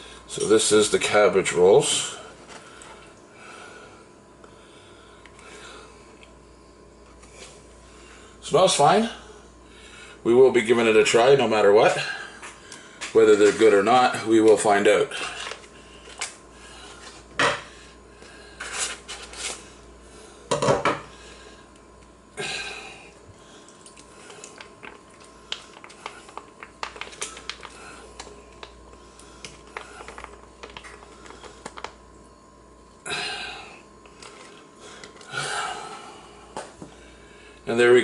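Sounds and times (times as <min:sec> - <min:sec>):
ration pouch rustling: 0:24.5 - 0:28.8, 0:29.5 - 0:32.0.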